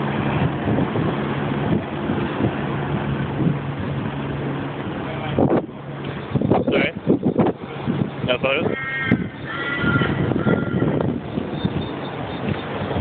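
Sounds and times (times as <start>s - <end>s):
engine humming: 0.0s - 13.0s
loud wash of noise: 0.0s - 13.0s.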